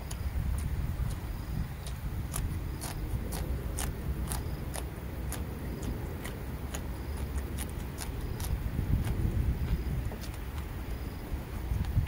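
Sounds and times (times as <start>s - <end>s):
crisp chewing crunches: 0.0s - 11.0s
steady low rumble: 0.0s - 12.0s
wet mouth clicks: 1.8s - 9.2s.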